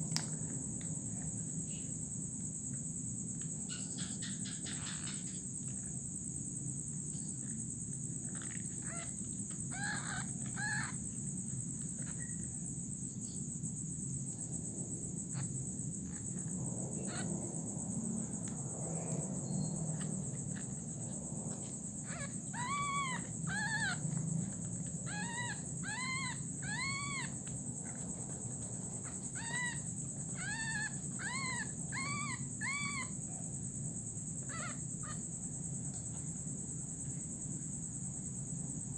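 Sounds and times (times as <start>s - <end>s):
insects droning: 0.0s - 38.9s
animal giving high calls: 8.4s - 11.0s, 22.0s - 24.2s, 25.0s - 28.0s, 29.0s - 33.1s, 34.5s - 35.2s.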